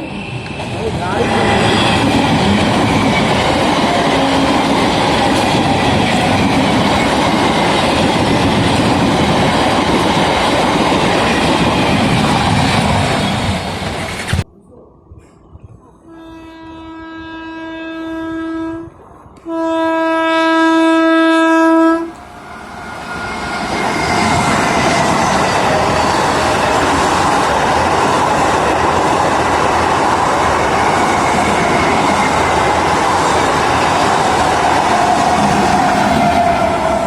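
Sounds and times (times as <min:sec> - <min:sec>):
train wheels on rails: 0:00.0 - 0:14.4, 0:22.1 - 0:37.0
train horn blasts: 0:16.1 - 0:22.8.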